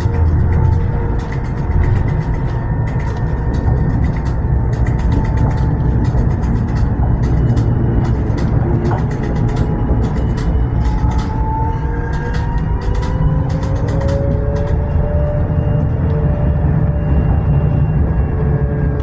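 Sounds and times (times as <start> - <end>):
light clicks and rattles: 0.0 - 15.0
faint whine: 0.0 - 19.0
tram rumbling on rails: 0.0 - 19.0.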